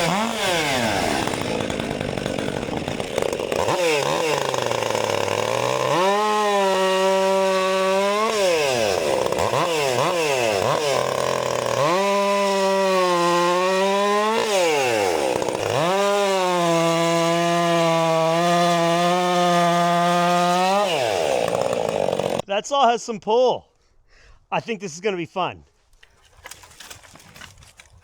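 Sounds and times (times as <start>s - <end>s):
chainsaw cutting logs: 0.0s - 22.5s, 25.9s - 28.0s.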